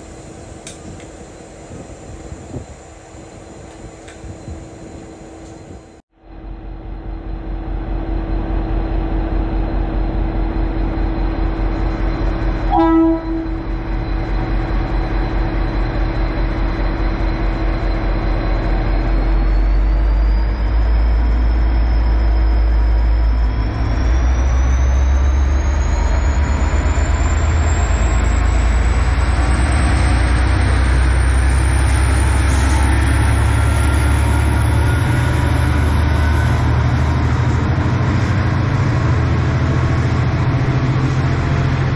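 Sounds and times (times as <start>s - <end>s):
diesel train engine rumble: 0.0s - 41.9s
rising engine whine: 0.1s - 41.9s
train horn toot: 12.7s - 13.8s.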